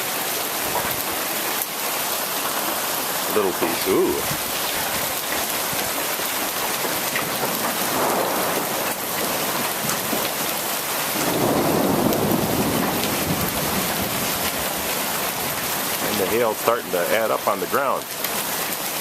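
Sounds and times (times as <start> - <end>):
rain and hail pattering: 0.0 - 19.0
thunder rumble: 6.8 - 10.4, 11.1 - 16.1.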